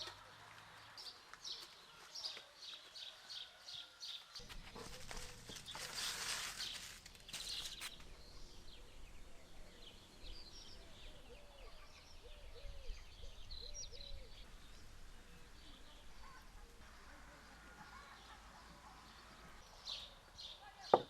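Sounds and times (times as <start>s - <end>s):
small birds chirping: 0.0s - 21.0s
rustling: 4.4s - 8.2s.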